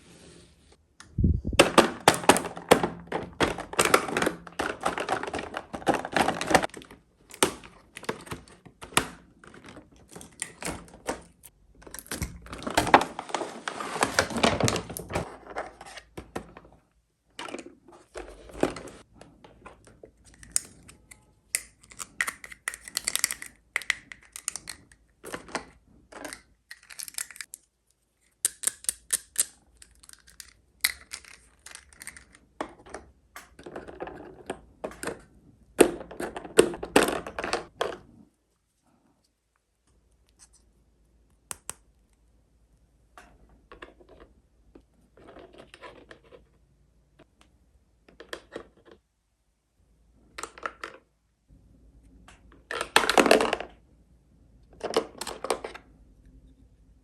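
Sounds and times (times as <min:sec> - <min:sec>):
packaging rustling and tearing: 0:03.3 - 0:08.6, 0:12.0 - 0:15.8
plastic toy pieces clicking: 0:20.2 - 0:25.6, 0:26.2 - 0:27.7, 0:28.3 - 0:32.5.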